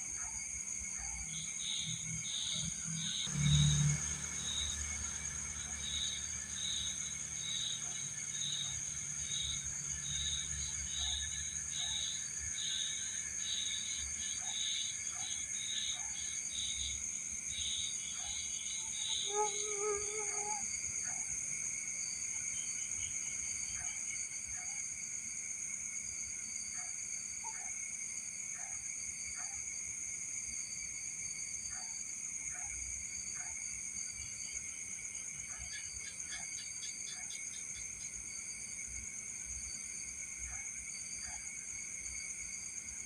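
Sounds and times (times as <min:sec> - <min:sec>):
crickets trilling: 0:00.0 - 0:43.0
rhythmic insect chirping: 0:00.3 - 0:24.1.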